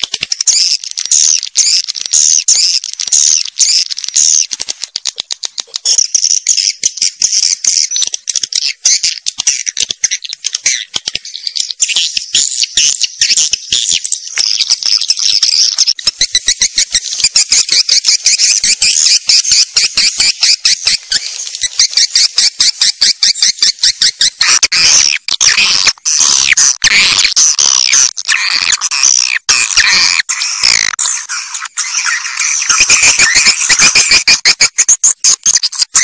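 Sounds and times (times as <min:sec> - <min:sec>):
swiftlets chirping and clicking: 0:00.0 - 0:36.0
loud sweeping bird calls: 0:05.5 - 0:36.0.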